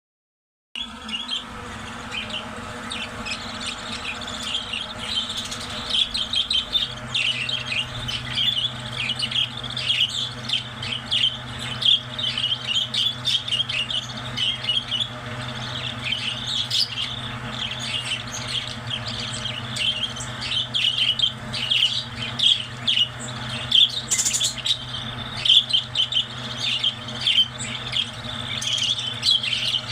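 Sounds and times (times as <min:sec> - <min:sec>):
parrots chirping and chattering: 0:00.8 - 0:29.9
steady low hum: 0:00.8 - 0:29.9.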